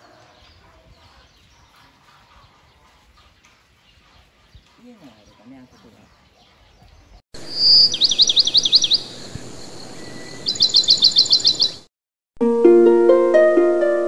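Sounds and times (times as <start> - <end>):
bird chirping in trills: 6.1 - 11.9.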